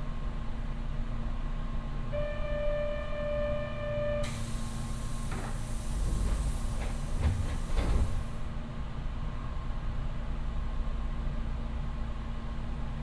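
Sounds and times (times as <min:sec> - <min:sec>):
air hiss: 0:04.2 - 0:08.4.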